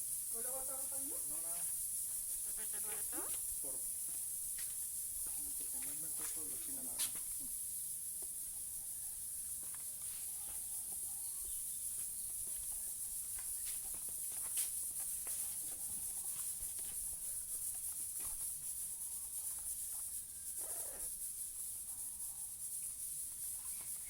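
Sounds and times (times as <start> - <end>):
steady high hiss: 0.0 - 24.0
parrot call: 20.6 - 21.1.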